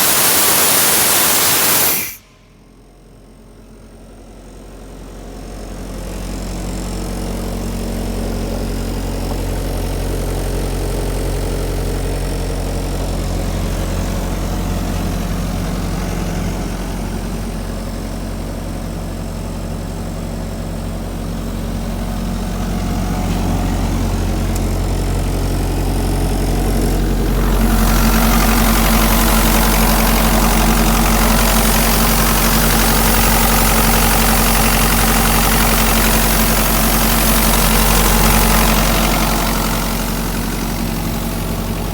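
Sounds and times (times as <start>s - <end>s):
loud rushing hiss: 0.0s - 2.7s
diesel engine running: 4.9s - 41.9s.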